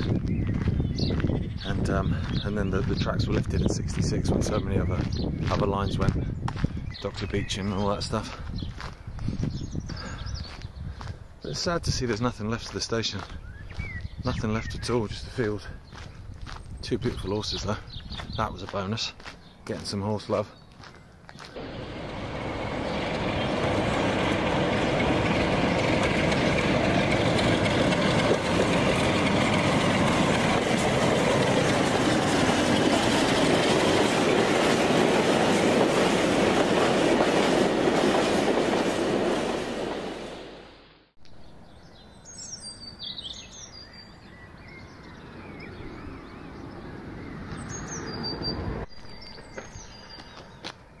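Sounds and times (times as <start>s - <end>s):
train rumbling and rattling: 21.6s - 40.8s.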